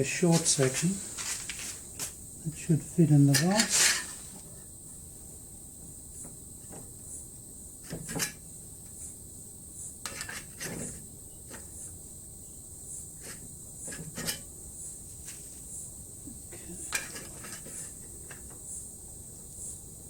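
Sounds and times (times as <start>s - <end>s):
metal clanks and knocks: 7.8s - 8.4s, 13.2s - 14.5s, 16.6s - 18.6s.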